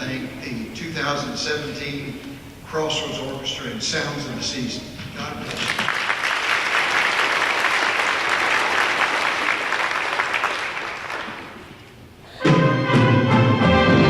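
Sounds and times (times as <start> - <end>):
audience applauding: 5.4 - 11.9
orchestra chord: 12.4 - 14.0.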